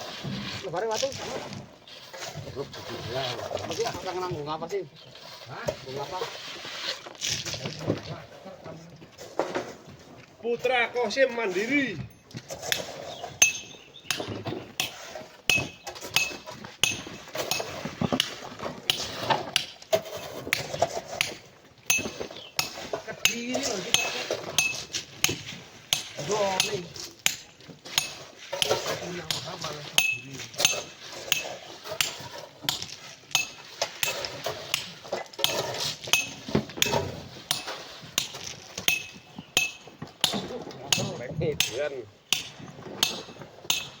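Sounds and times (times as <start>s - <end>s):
scraping: 0.0s - 44.0s
metal tools striking rock: 12.0s - 18.3s, 21.2s - 44.0s.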